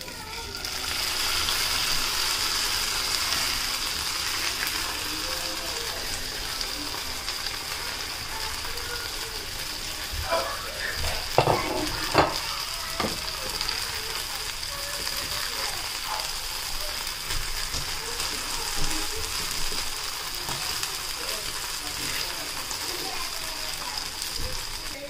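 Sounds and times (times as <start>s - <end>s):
food sizzling in oil: 0.0s - 25.0s
knocks against a pan: 11.4s - 13.2s.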